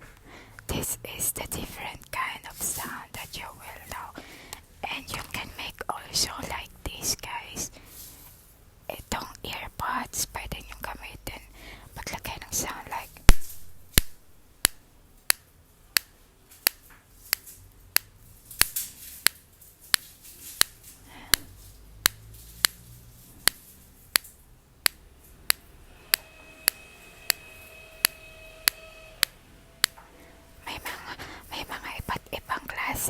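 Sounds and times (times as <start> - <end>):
sharp clicks: 13.2 - 30.0.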